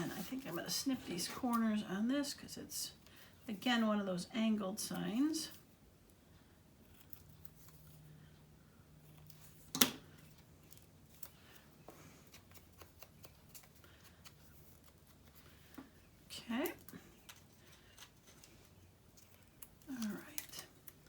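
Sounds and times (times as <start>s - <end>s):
scissors snipping paper: 12.2s - 15.4s, 16.6s - 21.0s.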